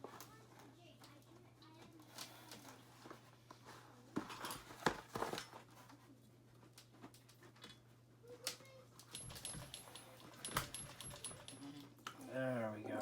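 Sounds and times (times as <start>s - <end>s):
tools clicking and knocking: 9.1s - 11.8s.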